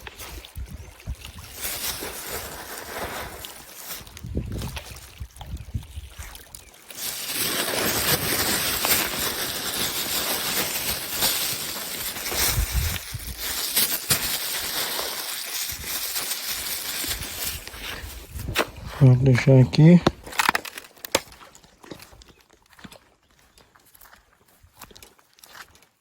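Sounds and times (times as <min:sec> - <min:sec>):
water sloshing and lapping: 0:00.0 - 0:19.0.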